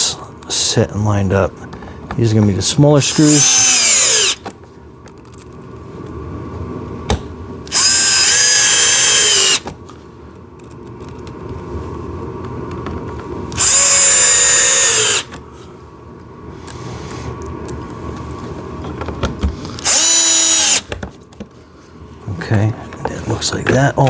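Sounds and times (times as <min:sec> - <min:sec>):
power drill driving screws: 0:03.1 - 0:04.4, 0:07.7 - 0:09.7, 0:13.6 - 0:15.3, 0:19.8 - 0:20.9.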